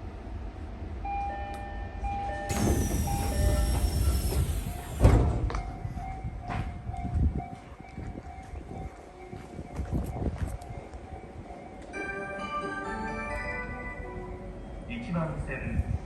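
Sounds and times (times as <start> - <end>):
train air hiss: 2.5 - 5.5
heavy thump: 3.8 - 5.6.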